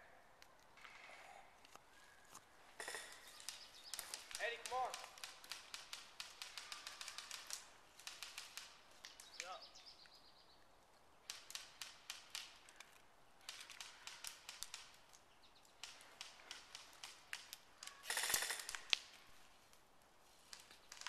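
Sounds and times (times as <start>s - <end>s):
airsoft gun clicks: 0.4s - 10.2s, 11.2s - 19.8s
sharp crack: 2.8s - 9.6s, 11.2s - 19.2s
rapid full-auto burst: 18.0s - 18.9s.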